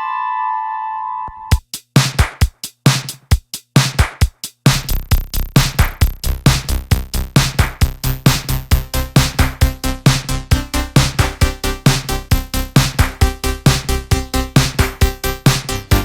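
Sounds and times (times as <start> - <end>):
synth bass line: 5.1 - 16.0
synthesizer electronic music: 5.5 - 16.0.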